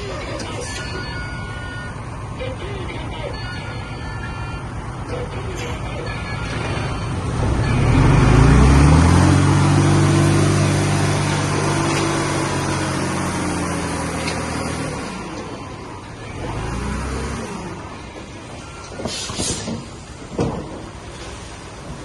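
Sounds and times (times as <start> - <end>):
diesel engine revving: 4.1 - 20.2.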